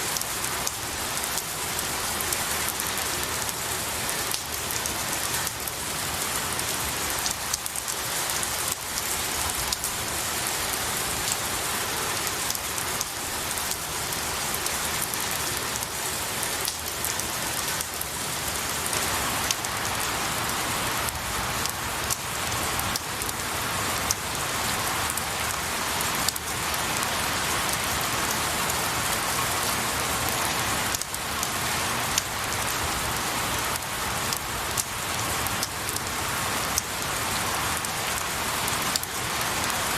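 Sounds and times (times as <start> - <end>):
rain falling on trees: 0.0 - 39.9
raindrop ticks: 0.1 - 1.5, 4.3 - 5.6, 12.5 - 13.8, 16.6 - 18.1, 18.9 - 19.7, 24.0 - 24.2, 30.9 - 31.5, 33.7 - 36.1, 37.8 - 39.8.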